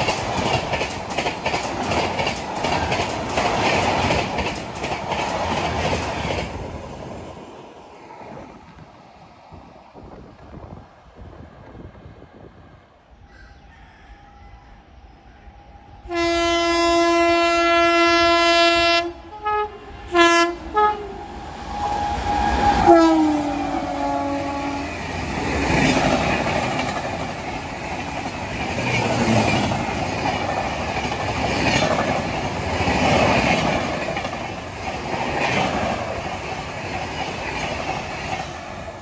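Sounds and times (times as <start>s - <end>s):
train coaches rushing past: 0.0s - 39.0s
locomotive horn blasts: 16.0s - 21.2s, 22.5s - 25.0s.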